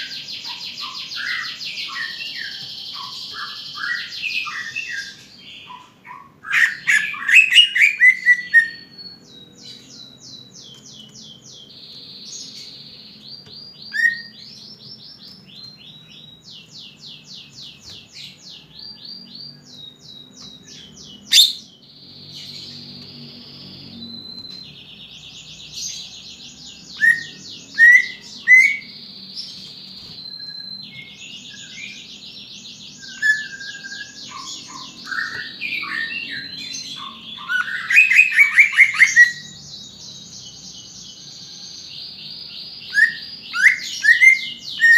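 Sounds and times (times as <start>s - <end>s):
bird singing trills: 0.0s - 44.9s
sharp bird chirps: 0.0s - 44.9s
loud falling bird calls: 33.0s - 39.5s.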